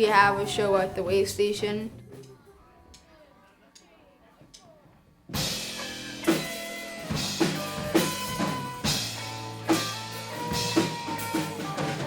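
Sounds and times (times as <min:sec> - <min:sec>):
drum hits: 0:05.3 - 0:12.0
rock band playing: 0:05.3 - 0:12.0.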